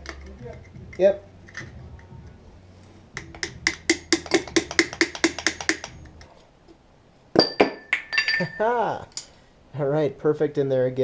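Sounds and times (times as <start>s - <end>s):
metallic clicks of hand tools: 3.2s - 6.2s.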